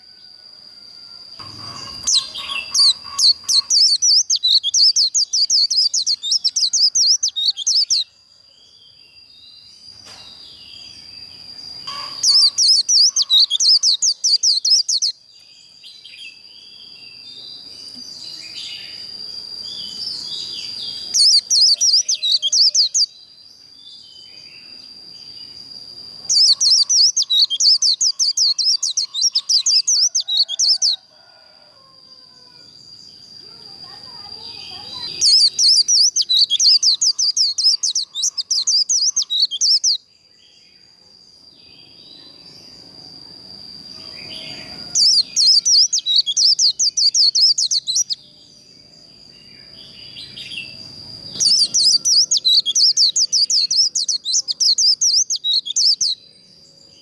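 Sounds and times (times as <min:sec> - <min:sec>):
thin steady high tone: 0:00.0 - 0:09.4, 0:10.8 - 0:15.5, 0:24.3 - 0:57.0
bird warbling: 0:01.4 - 0:08.0, 0:11.8 - 0:15.1, 0:26.3 - 0:31.0, 0:34.1 - 0:40.0.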